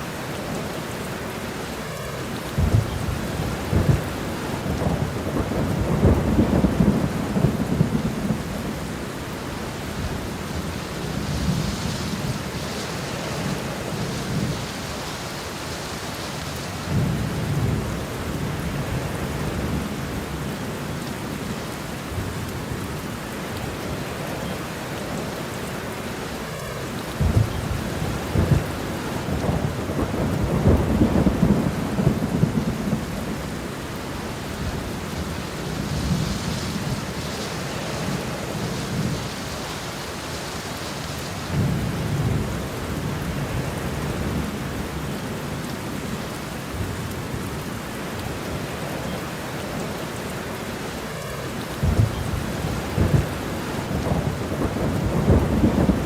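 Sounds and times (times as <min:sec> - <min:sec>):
steady rain: 0:00.0 - 0:56.0
thunder rumbling: 0:02.5 - 0:20.8, 0:26.5 - 0:47.6, 0:51.6 - 0:56.0.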